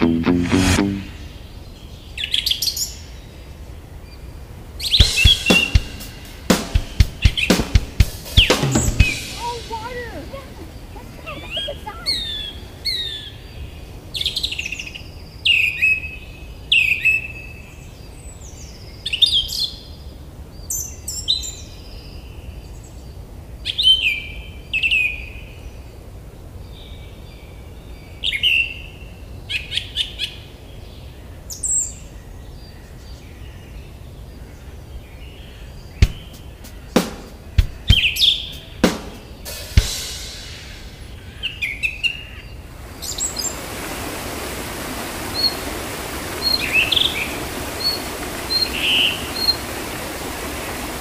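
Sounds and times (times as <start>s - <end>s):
birds calling sharp descending notes: 4.8s - 13.4s, 36.0s - 51.0s.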